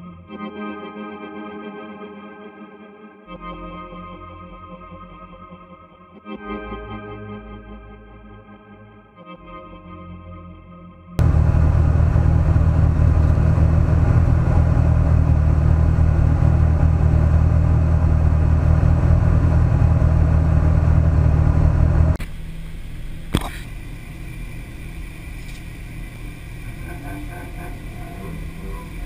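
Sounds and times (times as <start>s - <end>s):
race car engine idling: 11.2s - 29.0s
sharp click: 23.3s - 23.7s.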